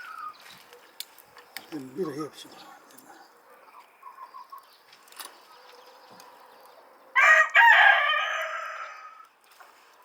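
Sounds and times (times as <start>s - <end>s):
rooster crowing: 7.2s - 9.2s.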